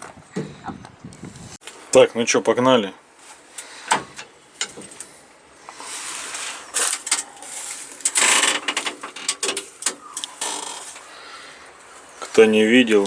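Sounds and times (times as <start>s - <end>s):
rustling: 3.2s - 13.0s.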